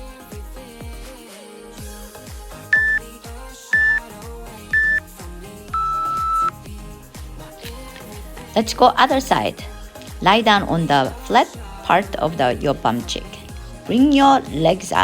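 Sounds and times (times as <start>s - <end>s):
background music with steady beat: 0.0s - 15.0s
interval timer beeps: 2.8s - 3.0s, 3.8s - 4.0s, 4.8s - 5.0s, 5.8s - 6.5s.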